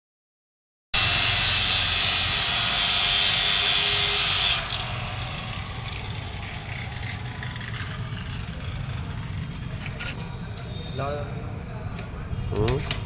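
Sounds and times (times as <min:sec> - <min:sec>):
loud hissing machine: 0:01.0 - 0:09.5
low engine rumble: 0:04.8 - 0:10.2.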